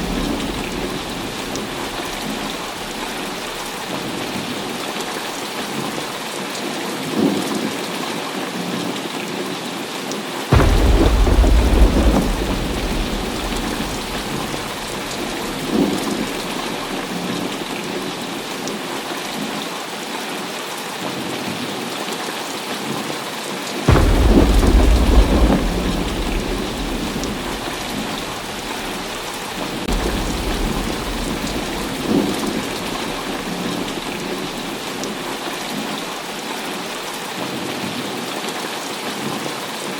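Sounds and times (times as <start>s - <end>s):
loud thunderclaps: 0.0s - 4.8s, 10.5s - 18.7s, 23.9s - 37.1s
thunder rumbling: 0.0s - 4.8s, 10.5s - 18.7s, 23.9s - 37.0s
heavy rain: 0.0s - 39.9s.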